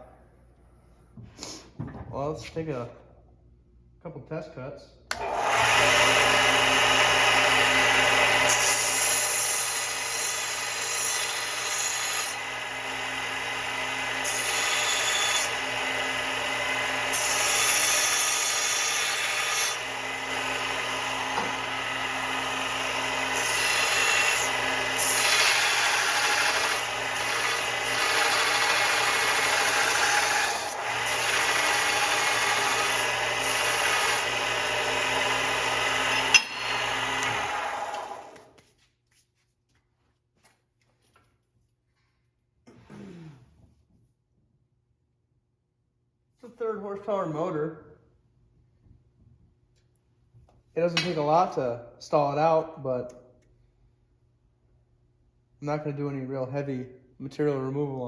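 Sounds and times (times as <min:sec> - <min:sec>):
sander grinding workpiece: 0:05.2 - 0:38.6
belt sander motor humming: 0:19.8 - 0:38.5.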